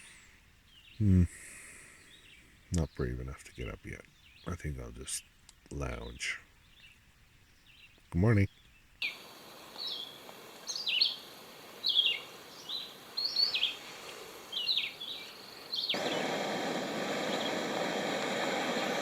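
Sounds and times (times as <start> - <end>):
songbird singing: 0.0 - 19.0
steady rushing noise: 15.9 - 19.0.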